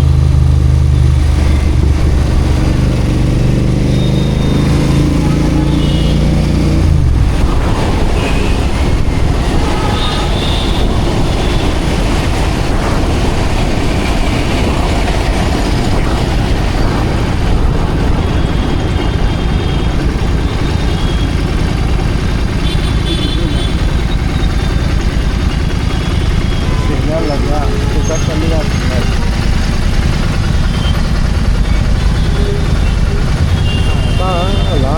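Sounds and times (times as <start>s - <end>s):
motorcycle engine rumble: 0.0s - 34.9s
rushing wind noise: 0.0s - 34.9s.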